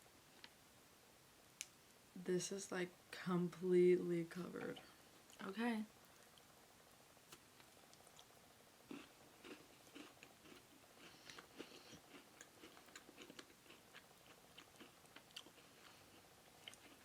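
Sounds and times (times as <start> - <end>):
chewing and crunching cookie: 7.3 - 17.0.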